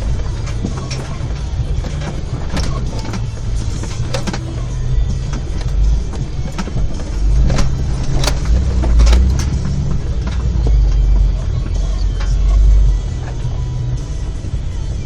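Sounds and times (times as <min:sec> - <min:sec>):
vehicle knocking over rocks: 0:00.0 - 0:12.3
off-road vehicle engine running: 0:00.0 - 0:15.0.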